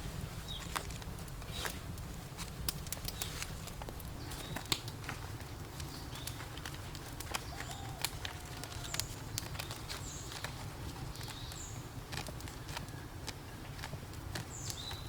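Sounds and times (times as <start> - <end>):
steady low rumble: 0.0 - 7.2
birds chirping: 3.0 - 15.0.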